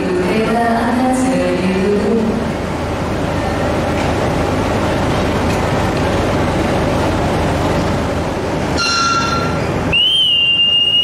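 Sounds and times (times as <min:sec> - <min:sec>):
high-pitched signal blasts: 0:08.8 - 0:11.0.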